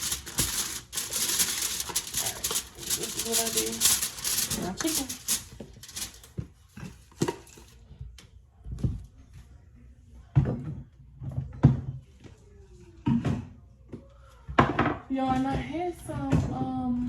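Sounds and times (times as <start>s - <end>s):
kitchen items knocking: 0.0s - 6.2s.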